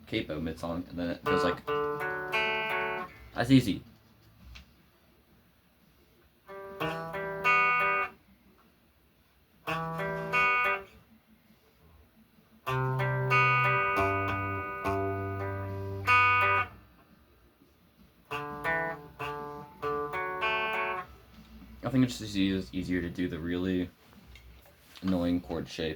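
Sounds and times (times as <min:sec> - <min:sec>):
guitar chords picked and strummed: 0:01.2 - 0:03.2, 0:06.5 - 0:08.2, 0:09.6 - 0:11.0, 0:12.6 - 0:16.8, 0:18.3 - 0:21.2.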